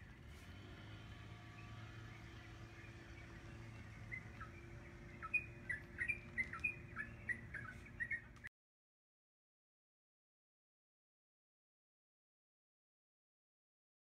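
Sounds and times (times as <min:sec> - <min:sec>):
low steady rumble: 0:00.0 - 0:08.5
small birds chirping: 0:00.0 - 0:08.5.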